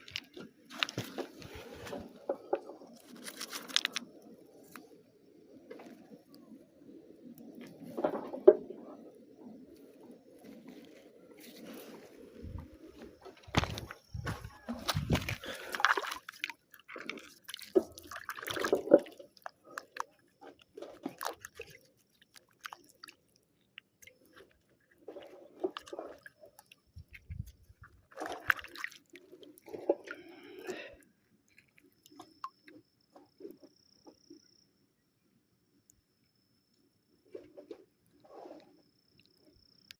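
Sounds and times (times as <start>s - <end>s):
stone and grit crunching: 13.4s - 16.4s.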